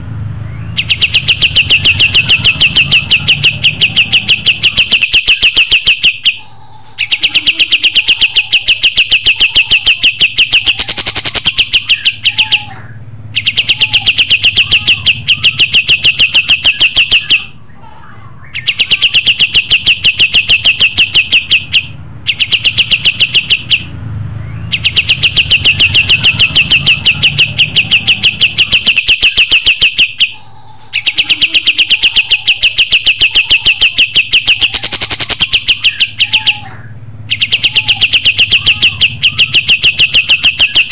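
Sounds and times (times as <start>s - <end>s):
faint bird chirps: 0.4s - 40.9s
songbird rapid trills: 7.0s - 12.6s, 24.7s - 36.6s.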